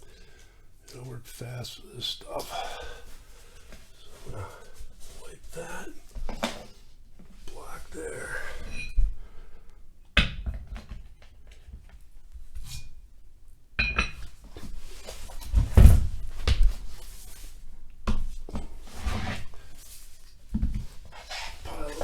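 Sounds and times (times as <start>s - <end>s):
rustling: 14.2s - 22.0s.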